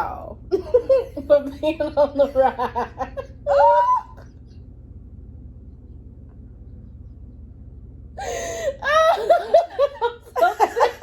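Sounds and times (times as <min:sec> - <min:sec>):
low steady hum: 0:00.0 - 0:11.0
woman squealing: 0:03.5 - 0:04.2.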